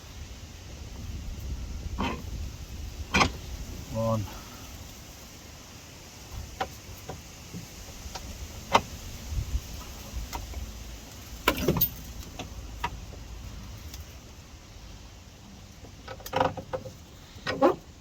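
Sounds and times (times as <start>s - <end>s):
metal clanks: 11.4s - 12.1s
metallic clicks and knocks: 11.4s - 13.0s.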